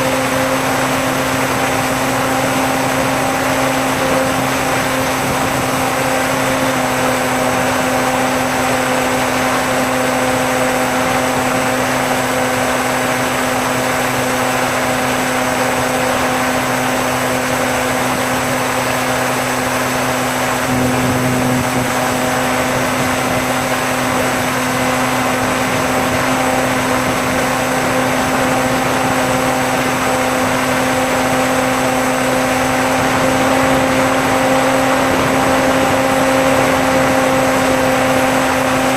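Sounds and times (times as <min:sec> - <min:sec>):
electric motor and propeller whine: 0:00.0 - 0:38.9
rushing air: 0:18.5 - 0:38.9.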